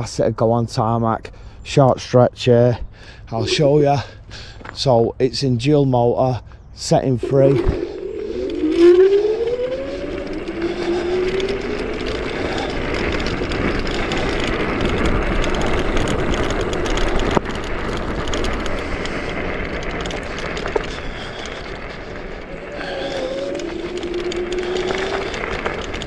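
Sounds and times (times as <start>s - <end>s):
wind and tyre noise: 0.0s - 26.0s
electric scooter motor whine: 7.0s - 26.0s.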